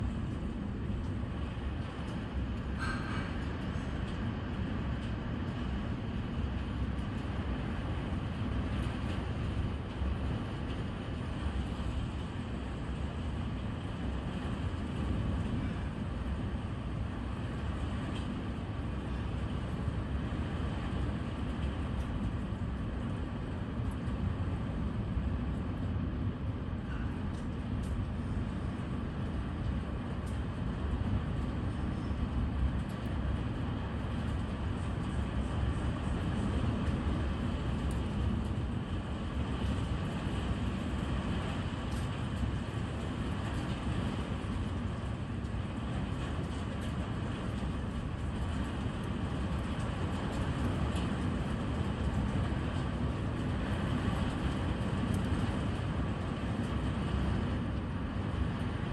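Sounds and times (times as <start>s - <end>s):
low rumble with hiss: 0.0s - 58.9s.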